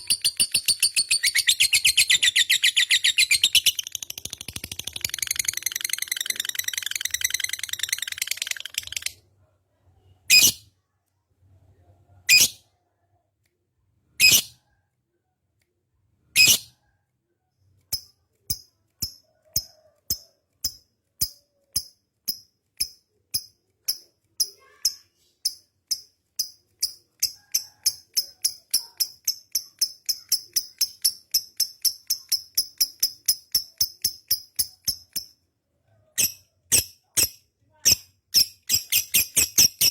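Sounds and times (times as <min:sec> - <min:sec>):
bird chattering trill: 0:00.0 - 0:09.2
bird chirps: 0:00.0 - 0:09.2.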